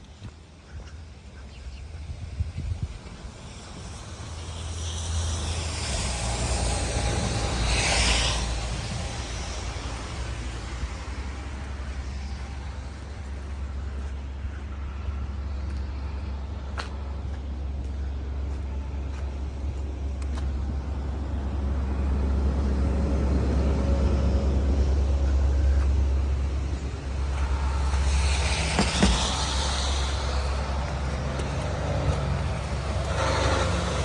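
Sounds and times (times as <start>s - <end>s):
road traffic rumble: 0.0s - 34.0s
vehicle passing with hiss: 1.8s - 18.5s, 19.5s - 34.0s.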